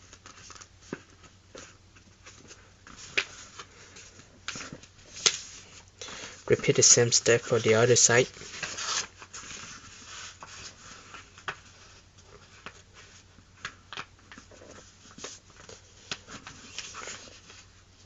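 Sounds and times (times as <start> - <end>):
paper being folded and creased: 0.0 - 5.8, 6.5 - 17.7.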